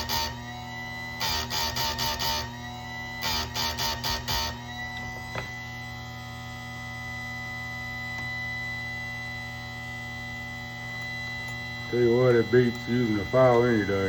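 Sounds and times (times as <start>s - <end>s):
chainsaw sharpener motor whining: 0.0s - 6.0s, 11.0s - 14.0s.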